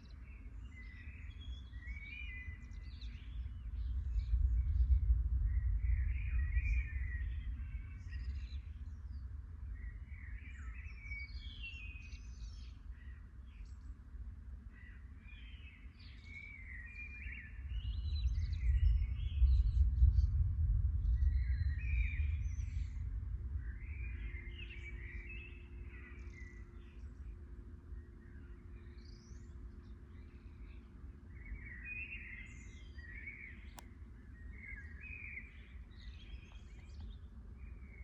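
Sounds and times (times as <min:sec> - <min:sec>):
songbirds chirping: 0:00.0 - 0:38.0
thunder rumbling: 0:18.1 - 0:25.2.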